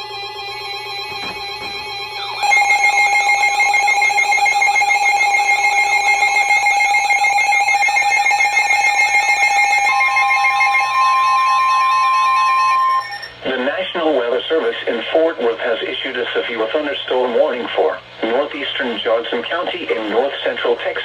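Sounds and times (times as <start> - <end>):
single-pitch alarm tone: 0.0 - 13.4
fast warbling alarm: 0.0 - 13.6.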